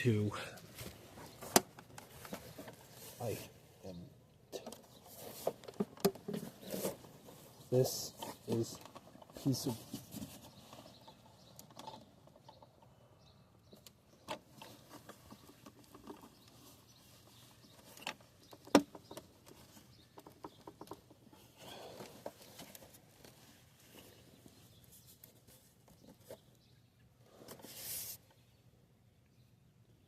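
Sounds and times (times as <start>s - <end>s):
short rustle: 27.3s - 28.4s.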